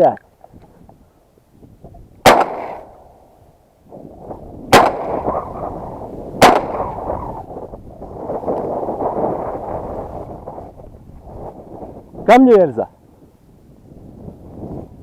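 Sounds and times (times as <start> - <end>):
wind on microphone: 0.3 - 15.0
shotgun shots: 2.2 - 3.2, 4.7 - 5.6, 6.4 - 7.3.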